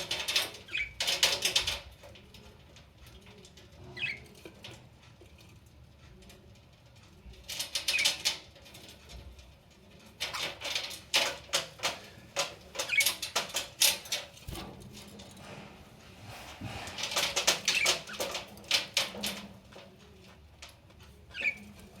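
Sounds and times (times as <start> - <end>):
budgies chirping and chattering: 0.1 - 1.8, 3.8 - 4.5, 7.7 - 8.5, 10.2 - 11.0, 11.8 - 14.6, 17.0 - 19.4, 21.2 - 22.0.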